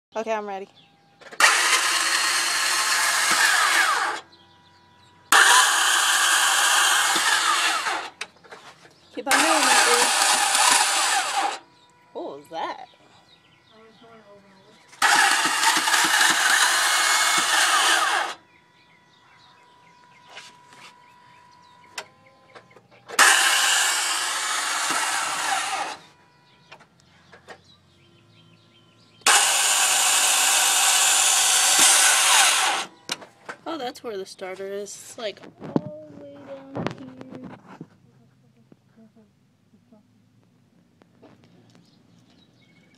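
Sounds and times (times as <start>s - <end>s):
starter motor whirring harshly: 1.2s - 8.4s, 9.0s - 12.6s, 14.9s - 33.3s.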